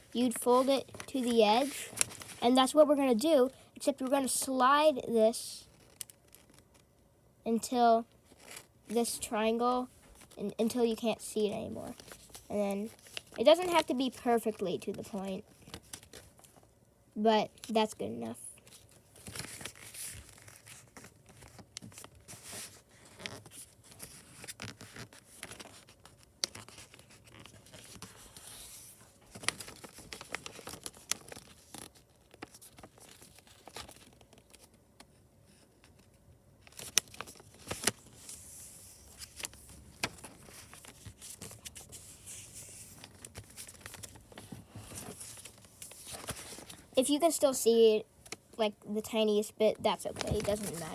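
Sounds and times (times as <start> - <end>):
paper rustling and crinkling: 0.0 - 2.7, 5.7 - 6.9, 8.2 - 9.2, 11.4 - 16.6, 18.6 - 47.0, 49.8 - 50.9.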